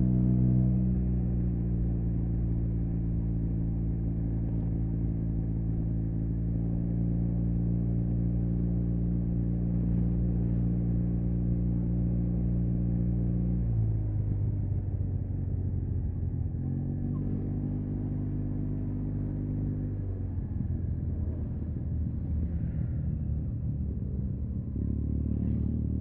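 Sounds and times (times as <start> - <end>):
motorcycle engine idling: 13.6 - 26.0.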